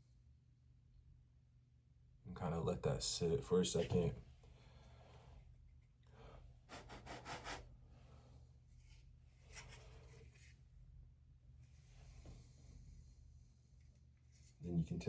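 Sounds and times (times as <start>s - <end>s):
low steady hum: 0.0s - 15.0s
hands scratching and rubbing: 6.7s - 7.6s.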